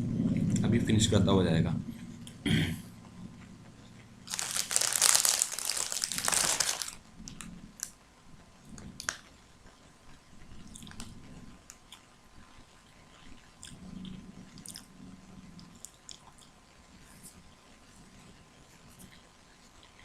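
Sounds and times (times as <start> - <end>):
rustling crinkling noise: 4.2 - 13.8.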